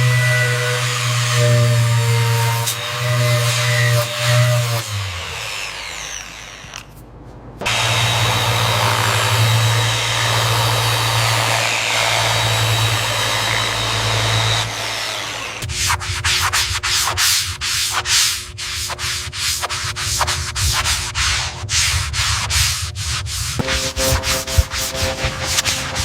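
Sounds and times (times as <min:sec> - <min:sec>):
hand sanding strokes: 0:00.0 - 0:07.0, 0:07.6 - 0:26.0
machine running with low hum: 0:23.6 - 0:26.0.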